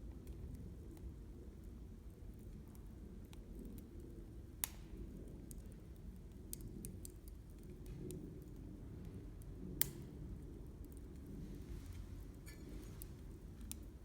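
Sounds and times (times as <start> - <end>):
campfire crackling: 0.2 - 14.0
sharp pops of fire: 4.6 - 5.6, 9.4 - 10.2.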